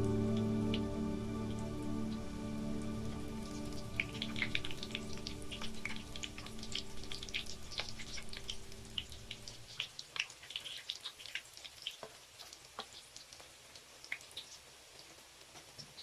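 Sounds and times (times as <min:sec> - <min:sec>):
low steady hum: 0:00.0 - 0:09.8
potatoes frying in hot oil: 0:02.9 - 0:16.0.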